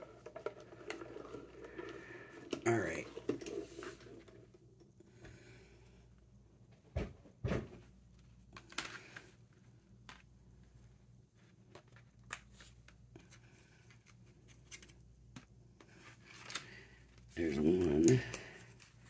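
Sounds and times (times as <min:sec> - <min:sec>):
paper rustling: 0:15.8 - 0:19.0.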